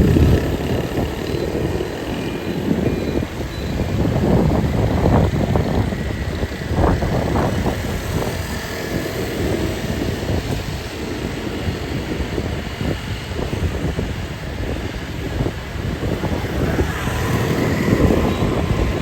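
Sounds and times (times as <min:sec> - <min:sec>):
vehicle engines passing: 0:14.4 - 0:19.0.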